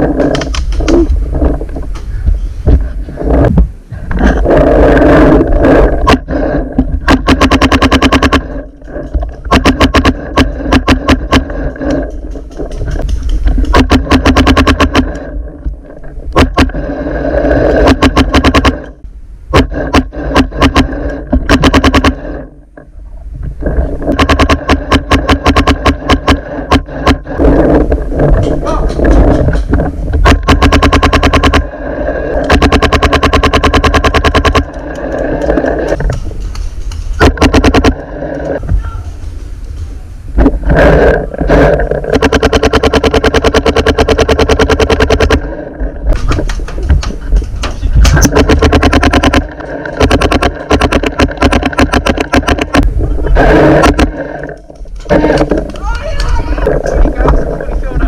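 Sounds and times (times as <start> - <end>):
steady hum: 0.0 - 58.0
paintball marker firing rapidly: 7.0 - 8.7, 9.4 - 15.3, 16.4 - 16.8, 17.8 - 19.0, 19.6 - 22.4, 24.1 - 27.4, 30.2 - 31.7, 32.4 - 36.0, 37.2 - 38.0, 41.5 - 45.5, 48.0 - 54.5
paintball marker firing: 7.1 - 8.5, 9.5 - 11.5, 12.9 - 15.2, 19.6 - 22.2.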